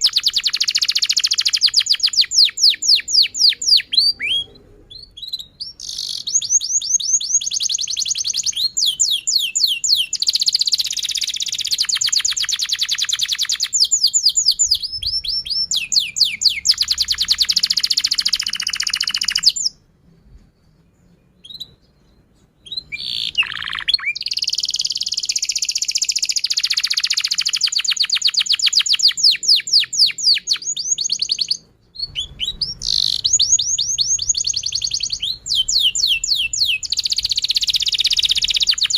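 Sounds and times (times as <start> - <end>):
canary singing trills: 0.0 - 19.8, 20.9 - 38.9.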